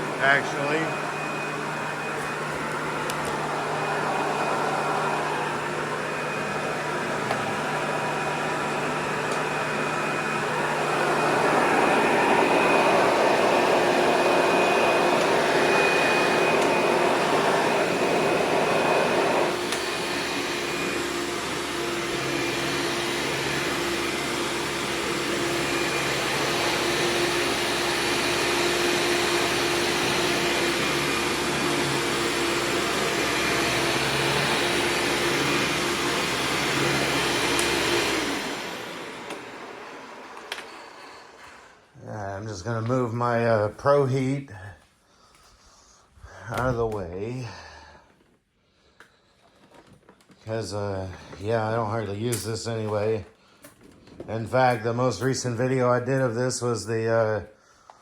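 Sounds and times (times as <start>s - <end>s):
vacuum cleaner running: 0.0s - 44.3s, 49.2s - 57.5s.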